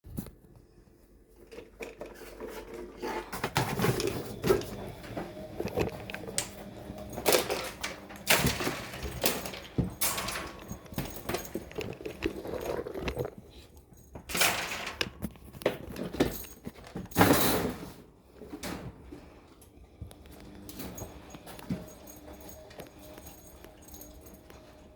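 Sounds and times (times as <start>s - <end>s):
jangling and clattering: 3.5s - 17.8s, 20.6s - 24.9s.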